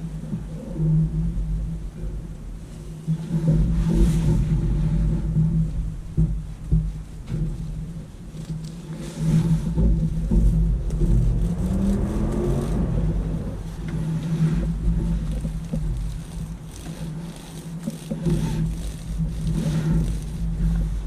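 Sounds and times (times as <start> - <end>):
motor humming: 7.4 - 21.0.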